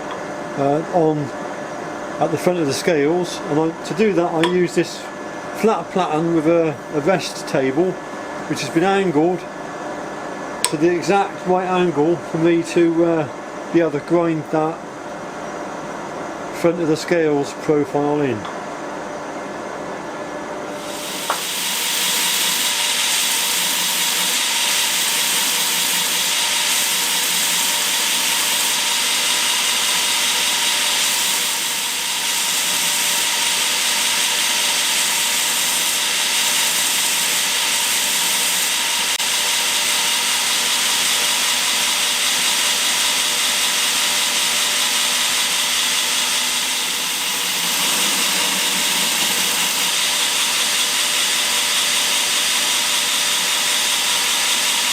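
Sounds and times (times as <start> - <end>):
belt grinder grinding: 20.8 - 42.4, 43.2 - 54.9.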